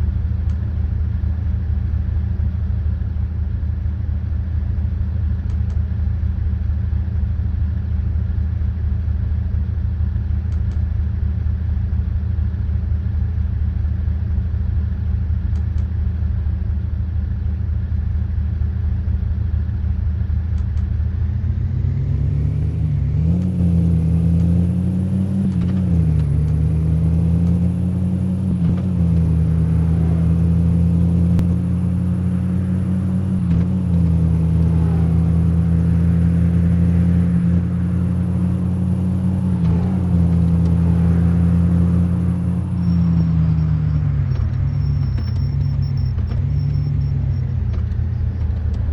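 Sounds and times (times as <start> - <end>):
car engine revving: 21.2 - 48.9.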